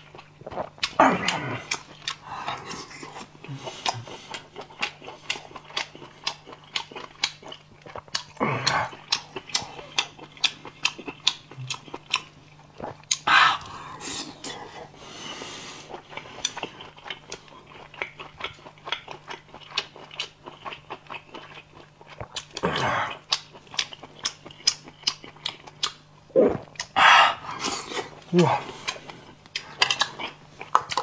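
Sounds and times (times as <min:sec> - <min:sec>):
wet chewing and lip smacks: 0:03.0 - 0:13.8, 0:15.9 - 0:22.6, 0:23.2 - 0:27.0, 0:27.6 - 0:31.0.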